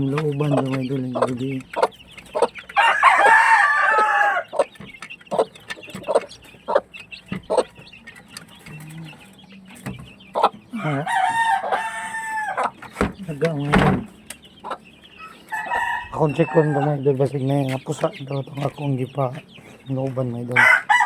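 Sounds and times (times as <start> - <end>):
hens clucking: 0.0 - 21.0
rooster crowing: 2.8 - 4.6, 10.7 - 12.8, 15.5 - 17.0, 20.6 - 21.0.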